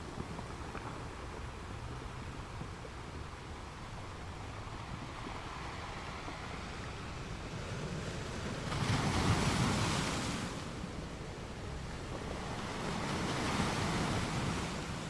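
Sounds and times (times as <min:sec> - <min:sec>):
ocean waves on sand beach: 0:00.0 - 0:15.0.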